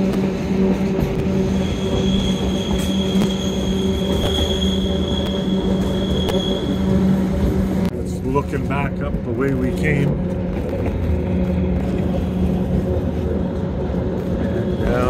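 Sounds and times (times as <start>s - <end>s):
electric train humming: 0.0s - 15.0s
wheels squealing: 1.0s - 7.7s, 11.6s - 15.0s.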